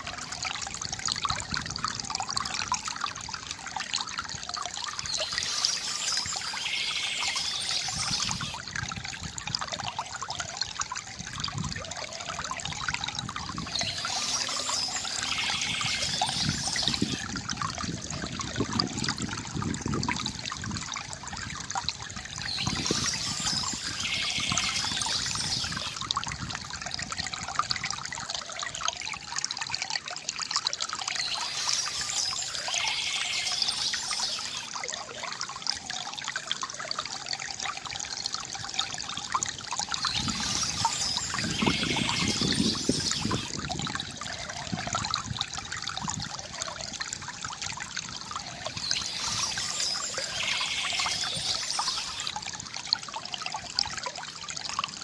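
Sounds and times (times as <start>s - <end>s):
fountain water trickling and splashing: 0.0s - 55.0s
bird chirps: 5.0s - 8.6s, 13.6s - 17.2s, 22.4s - 26.0s, 31.1s - 34.7s, 40.0s - 43.5s, 48.5s - 52.3s.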